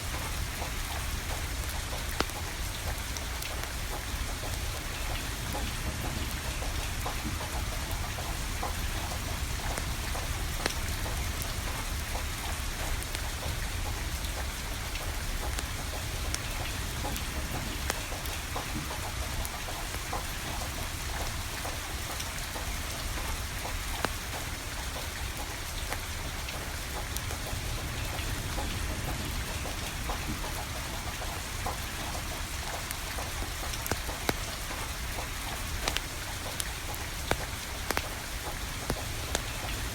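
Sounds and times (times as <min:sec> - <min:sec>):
steady rain falling: 0:00.0 - 0:39.9
wood fire crackling: 0:29.7 - 0:39.9.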